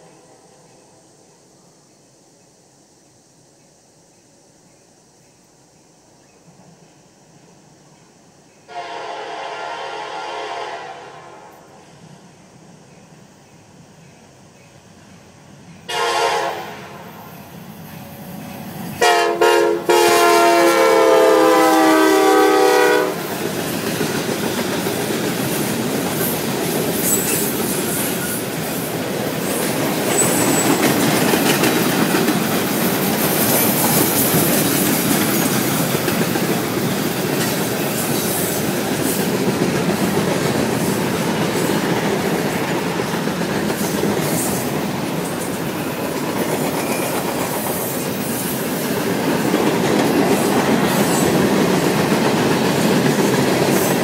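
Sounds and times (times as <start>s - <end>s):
freight train rumbling past: 5.9s - 54.0s
locomotive air horn chord: 8.7s - 11.8s, 15.9s - 17.2s, 19.0s - 23.2s
wheels clacking over rail joints: 23.2s - 54.0s.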